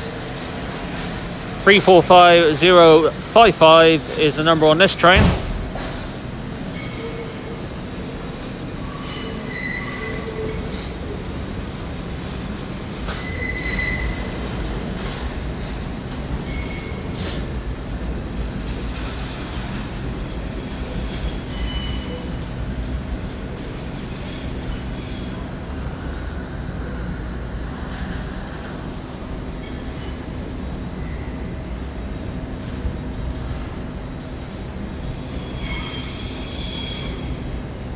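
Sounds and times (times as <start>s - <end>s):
low hum of running trains: 0.0s - 37.9s
high-pitched wheel squeals: 8.8s - 11.0s, 11.6s - 14.4s, 35.0s - 37.6s.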